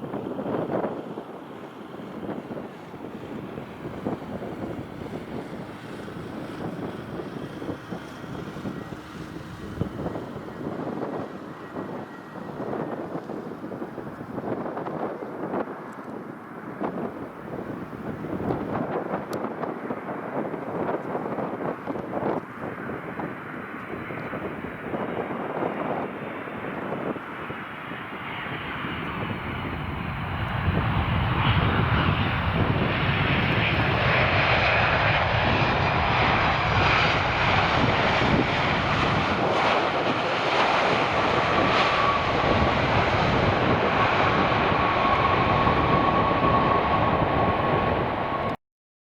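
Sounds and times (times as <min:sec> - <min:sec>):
jet engines rumbling: 0:00.0 - 0:48.6
thin engine whine: 0:00.6 - 0:14.6, 0:28.4 - 0:48.6.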